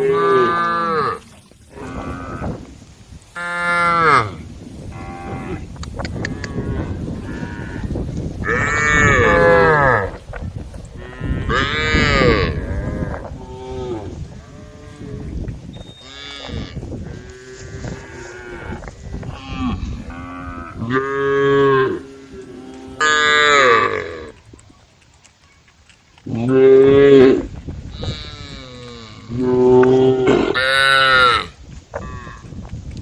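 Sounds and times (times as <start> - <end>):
cows mooing: 0.0 - 2.7, 3.4 - 10.2, 10.9 - 24.4.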